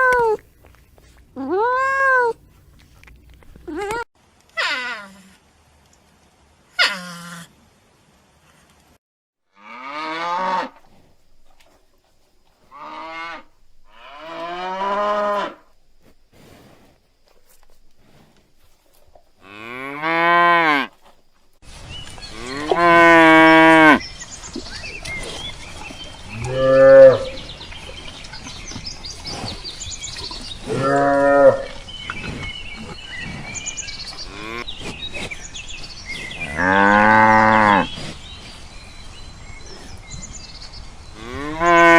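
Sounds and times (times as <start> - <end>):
steady background hiss: 3.7 - 9.0
cows mooing: 9.6 - 10.8, 12.7 - 15.6, 19.4 - 20.9, 22.3 - 24.0, 26.3 - 27.7, 30.1 - 34.8, 36.2 - 38.0, 41.2 - 41.9.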